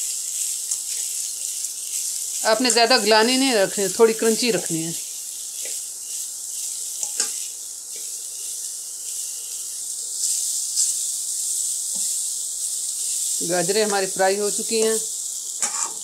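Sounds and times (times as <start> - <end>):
carrots sizzling in oil: 0.0 - 16.0
spatula scraping and tapping pan: 5.6 - 5.8, 6.6 - 8.2, 11.9 - 12.2, 15.6 - 16.0.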